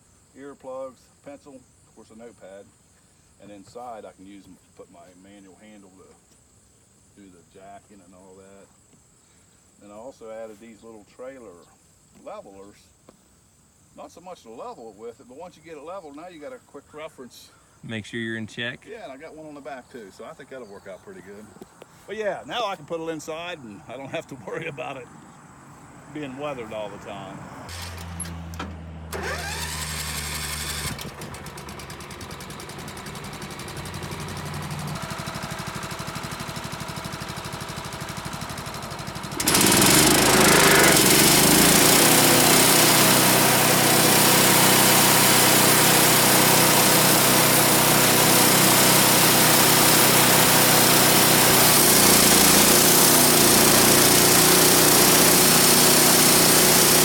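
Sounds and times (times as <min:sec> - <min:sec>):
small gas engine running: 0:27.7 - 0:57.0.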